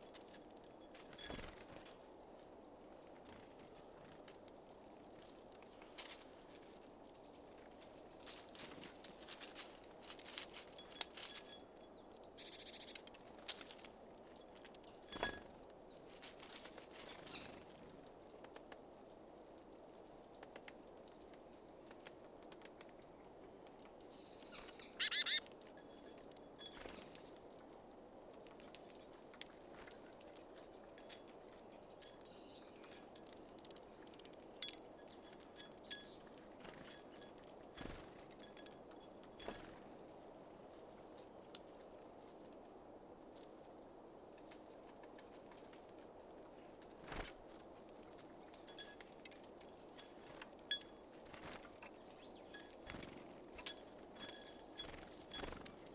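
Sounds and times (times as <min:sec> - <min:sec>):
birds tapping at feeder: 0:22.5 - 0:27.6, 0:28.4 - 0:39.8, 0:48.1 - 0:55.9.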